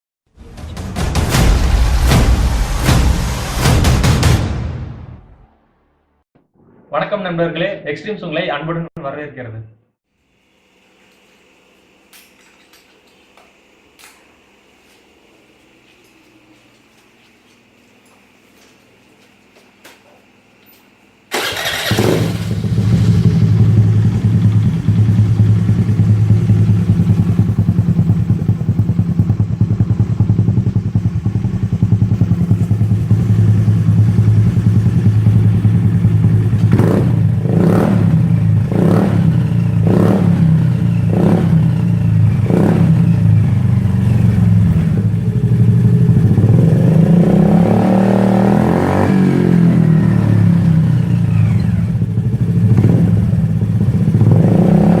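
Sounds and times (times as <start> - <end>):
scooter engine idling and revving: 21.3 - 55.0.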